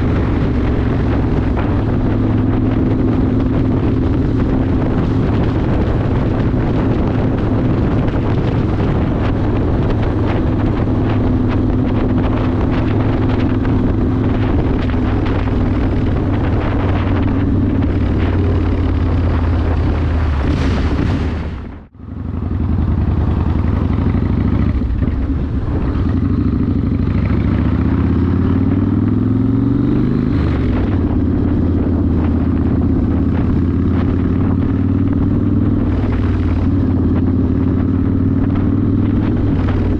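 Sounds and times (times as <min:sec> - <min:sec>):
motorcycle engine cruising: 0:00.0 - 0:39.9
wind rushing: 0:00.0 - 0:39.9.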